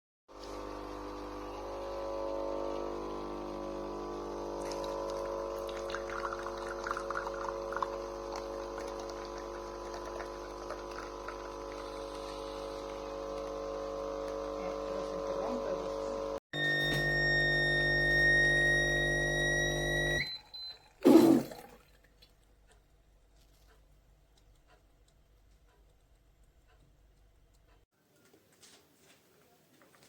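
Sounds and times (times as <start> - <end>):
coffee machine pump humming: 0.3 - 21.2
coffee sputtering: 0.4 - 16.4.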